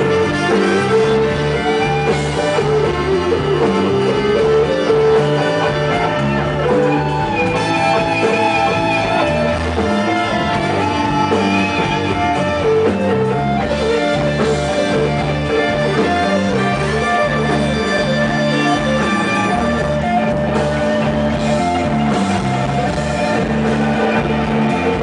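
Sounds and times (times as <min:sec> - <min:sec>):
blues band instrumental: 0:00.0 - 0:25.0
guitar lines: 0:00.0 - 0:25.0.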